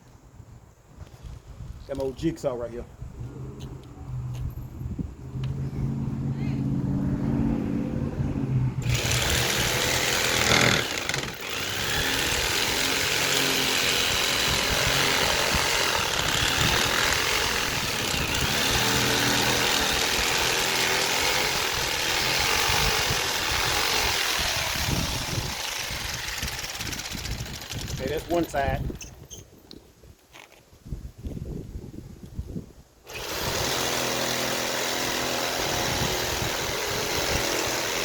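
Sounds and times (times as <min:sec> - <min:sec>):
jigsaw cutting wood: 0:08.8 - 0:28.5, 0:33.1 - 0:38.0.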